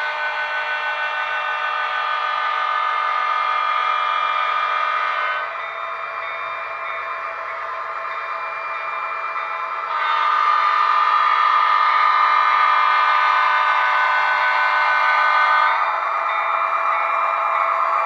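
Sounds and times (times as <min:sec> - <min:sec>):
train horn blast: 0:00.0 - 0:05.5, 0:09.9 - 0:16.1.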